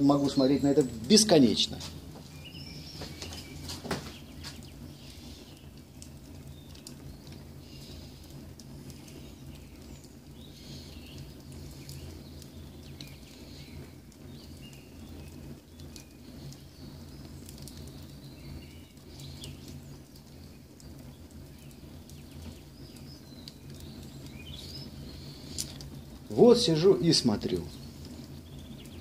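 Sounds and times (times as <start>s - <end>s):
birds chirping: 0.0s - 29.0s
steady low hum: 0.0s - 29.0s
wood fire crackling and popping: 0.0s - 29.0s.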